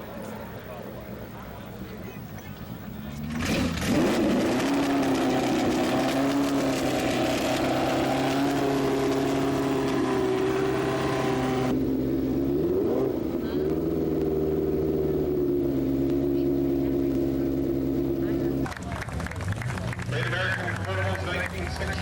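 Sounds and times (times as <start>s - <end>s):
car engine running steadily: 0.0s - 22.0s.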